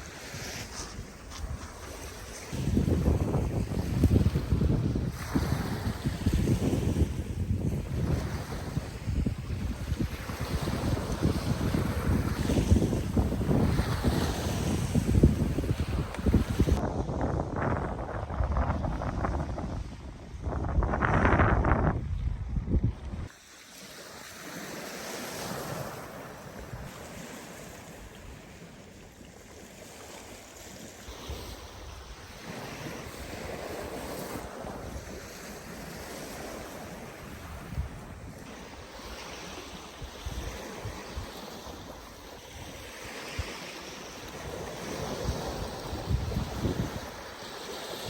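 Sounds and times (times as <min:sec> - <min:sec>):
sea waves washing onto shore: 0:00.0 - 0:16.8, 0:23.0 - 0:48.0
wind gusting on microphone: 0:00.0 - 0:23.3, 0:31.0 - 0:48.0.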